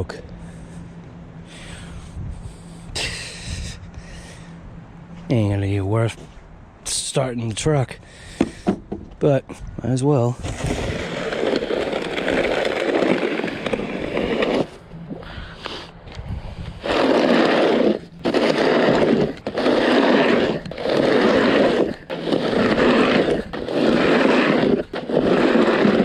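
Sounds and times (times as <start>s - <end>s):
shovel scraping snow: 10.4s - 14.8s, 16.8s - 26.0s.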